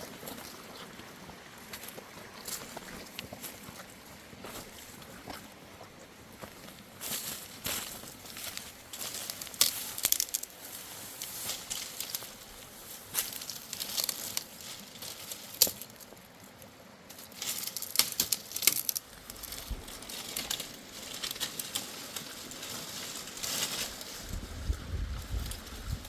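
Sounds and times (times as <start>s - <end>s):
crackling and rustling: 6.7s - 26.0s.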